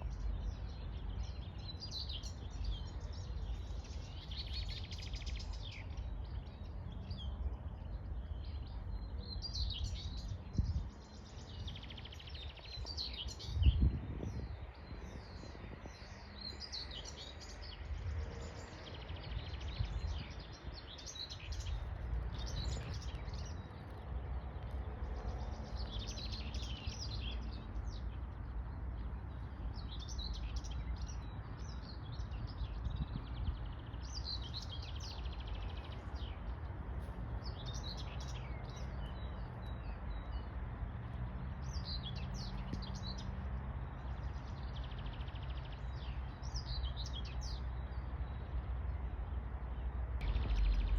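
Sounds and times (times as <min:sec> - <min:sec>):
songbirds chirping: 0:00.0 - 0:50.9
steady low rumble: 0:50.2 - 0:50.9.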